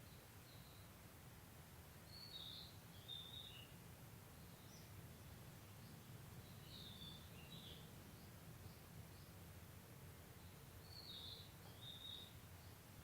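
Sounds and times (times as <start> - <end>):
birds twittering: 2.1 - 3.8, 4.4 - 9.4, 10.3 - 12.9.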